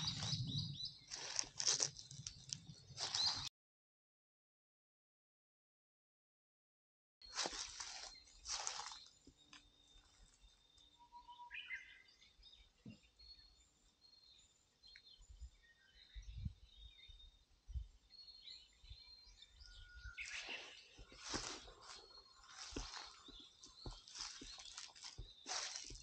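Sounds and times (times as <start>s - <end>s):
small bird chirps: 0.0s - 3.5s, 7.2s - 26.0s
rustling: 1.1s - 3.5s, 21.1s - 26.0s.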